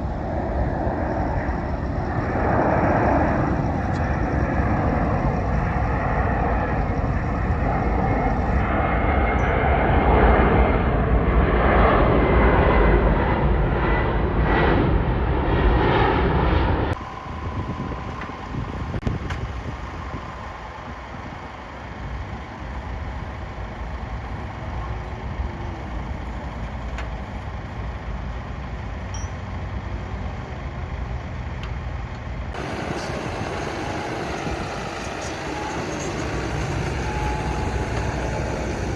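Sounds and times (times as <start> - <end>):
tractor engines running: 0.0 - 8.7, 16.9 - 38.9.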